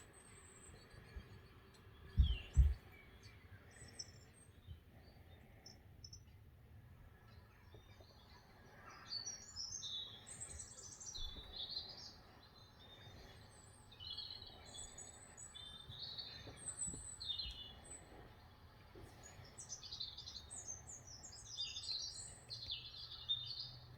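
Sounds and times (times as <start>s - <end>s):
low steady hum: 0.0s - 23.9s
songbirds chirping through a tv: 0.0s - 23.9s.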